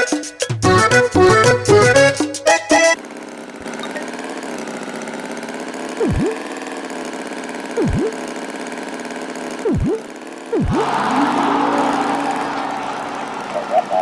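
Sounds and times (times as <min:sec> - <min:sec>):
accordion music: 0:00.0 - 0:03.0
engine idling: 0:02.8 - 0:14.0
swooping tone: 0:06.0 - 0:06.4, 0:07.8 - 0:08.2, 0:09.6 - 0:12.4.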